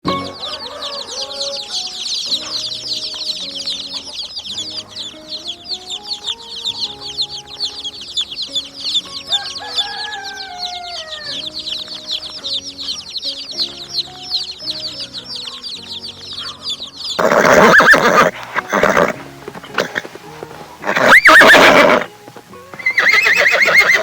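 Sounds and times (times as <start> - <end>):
chickens clucking: 0.0 - 24.0
dense high chirping: 0.0 - 24.0
rooster crowing: 0.1 - 2.8, 9.1 - 11.8, 16.4 - 24.0.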